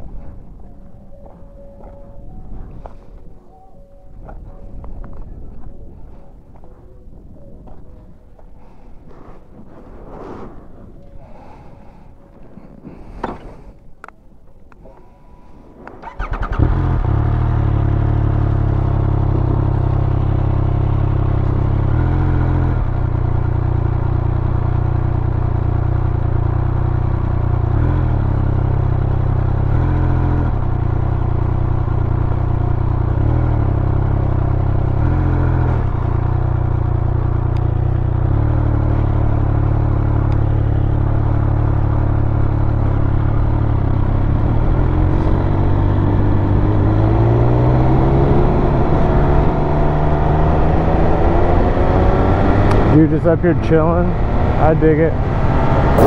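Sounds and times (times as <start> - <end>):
motorcycle engine revving: 16.0 - 56.0.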